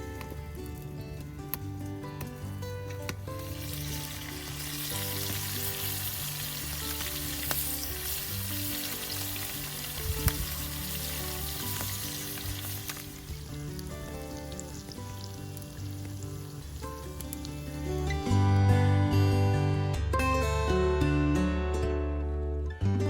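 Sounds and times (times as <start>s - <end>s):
background music: 0.0s - 23.0s
food sizzling in hot oil: 2.4s - 18.2s.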